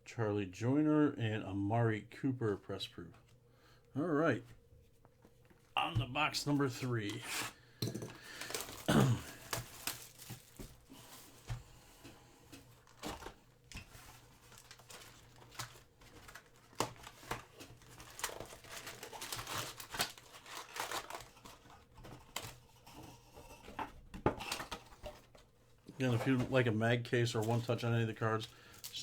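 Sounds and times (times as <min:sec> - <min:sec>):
wrapper tearing: 0:08.2 - 0:10.9, 0:12.8 - 0:22.6, 0:28.3 - 0:29.0
plastic wrapper crinkling: 0:08.2 - 0:11.6, 0:12.6 - 0:22.6, 0:27.4 - 0:29.0.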